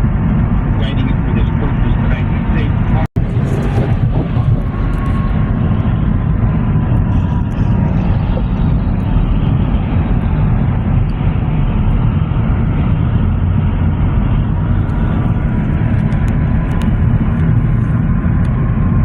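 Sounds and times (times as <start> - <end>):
train rumbling past: 2.6 - 11.6.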